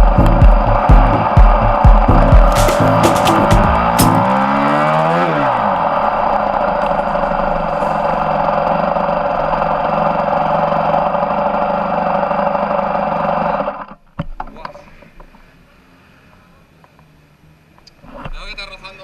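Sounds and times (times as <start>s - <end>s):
motorbike engine revving: 0.0s - 14.0s.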